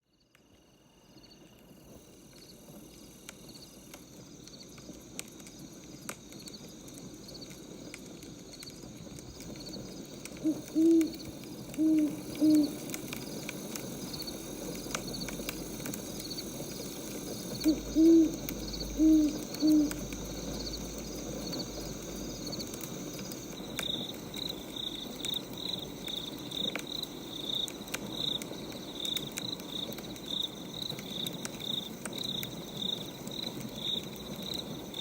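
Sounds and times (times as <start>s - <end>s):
wood fire crackling: 1.4s - 35.0s
owl hooting: 10.3s - 13.0s, 17.5s - 20.6s.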